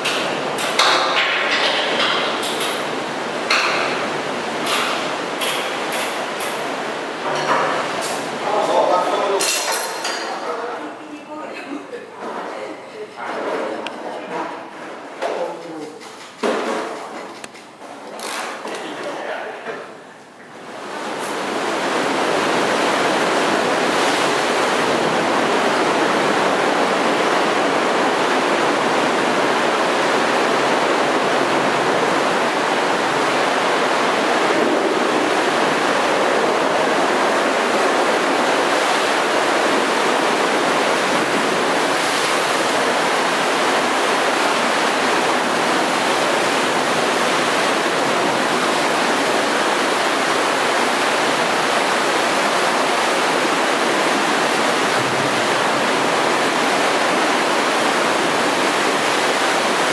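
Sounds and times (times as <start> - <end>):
heavy surf rushing: 0.0 - 59.9.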